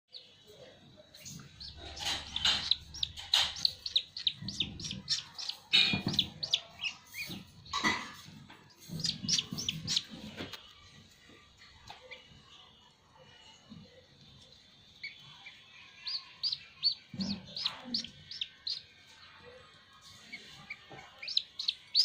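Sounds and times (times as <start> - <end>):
duckling peeping: 1.2 - 7.7, 8.6 - 10.6, 15.0 - 19.1, 20.2 - 22.0.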